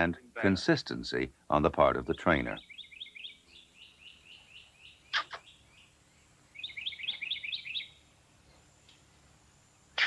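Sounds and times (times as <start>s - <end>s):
small bird chirping: 2.6s - 9.1s.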